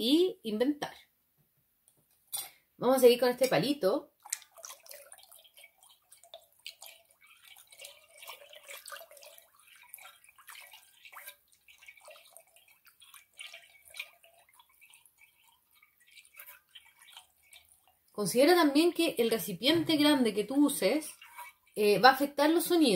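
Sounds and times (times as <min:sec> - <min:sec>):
stick splashing in water: 0:04.2 - 0:17.8.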